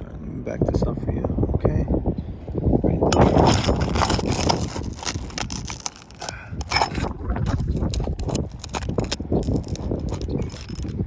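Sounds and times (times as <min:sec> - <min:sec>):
hand tool scraping and clicking: 0:03.1 - 0:11.0.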